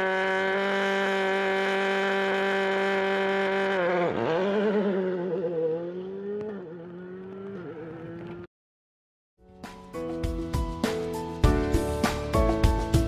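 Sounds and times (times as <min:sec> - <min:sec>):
rally car engine revving: 0:00.0 - 0:08.5.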